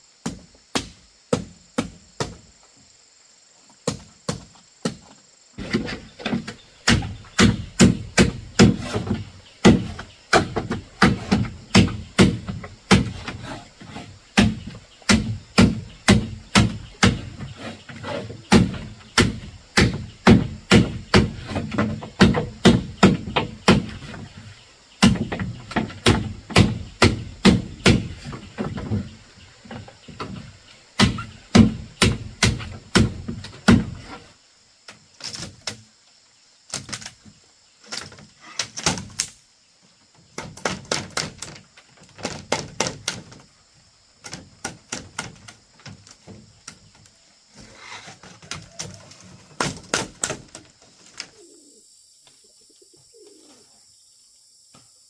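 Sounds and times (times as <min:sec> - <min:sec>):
chopping blows on wood: 0:00.2 - 0:02.4, 0:03.8 - 0:13.5, 0:14.4 - 0:24.2, 0:25.0 - 0:29.0, 0:31.0 - 0:34.1, 0:49.6 - 0:50.6.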